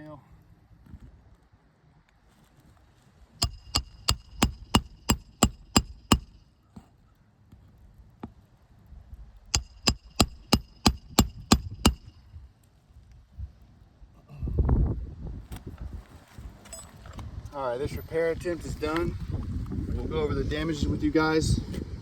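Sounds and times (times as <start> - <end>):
hammer striking roofing nails: 3.4 - 6.4, 9.5 - 12.2.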